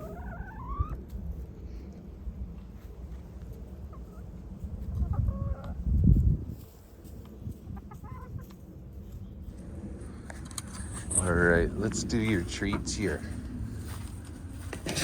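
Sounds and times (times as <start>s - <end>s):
hens clucking: 0.0s - 1.4s, 3.0s - 15.0s
low rumbling noise: 8.7s - 15.0s.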